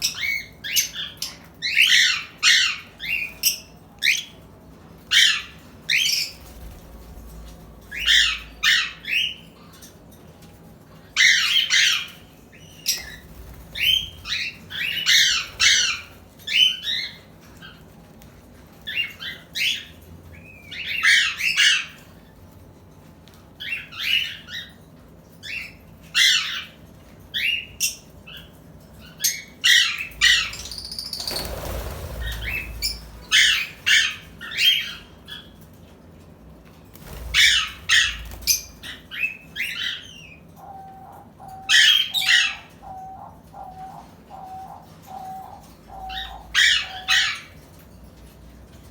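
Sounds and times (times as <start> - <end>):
parrots squawking: 7.8 - 9.4, 11.2 - 17.2, 29.2 - 35.6, 37.0 - 47.6.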